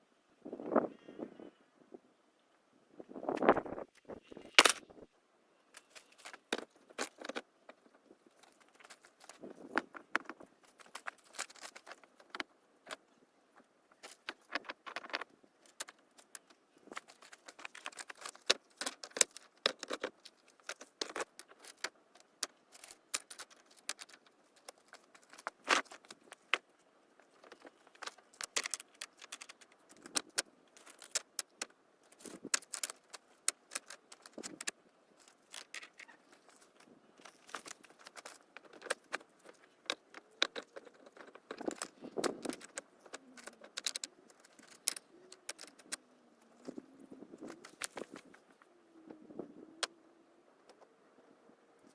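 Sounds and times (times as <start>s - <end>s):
stones knocking together: 4.4s - 4.9s, 37.3s - 46.0s.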